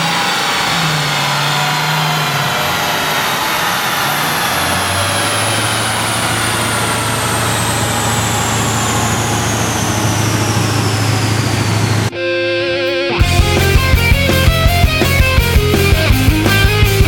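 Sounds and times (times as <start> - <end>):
car engine idling: 0.0 - 12.1, 13.2 - 17.0
thin high whine: 0.0 - 16.1
held musical tones: 0.4 - 17.0.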